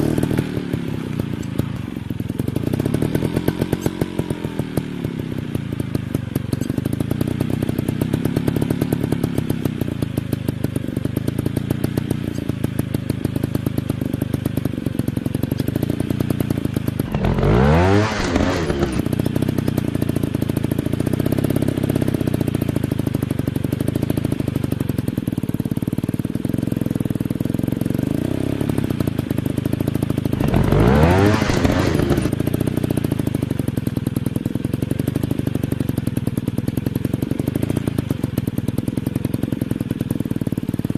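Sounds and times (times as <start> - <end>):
dirt bike engines running: 0.0 - 40.9.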